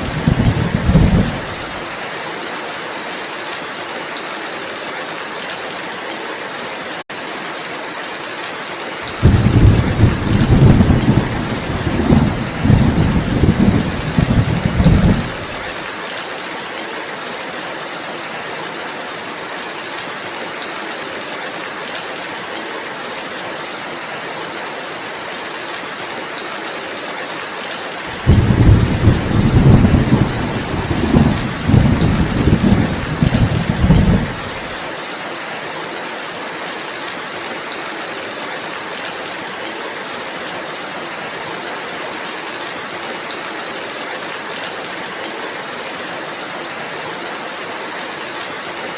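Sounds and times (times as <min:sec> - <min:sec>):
thunder rumbling: 0:00.0 - 0:01.8, 0:09.1 - 0:15.6, 0:28.1 - 0:34.7
rain hissing: 0:00.0 - 0:02.0, 0:09.0 - 0:15.9, 0:28.0 - 0:34.8.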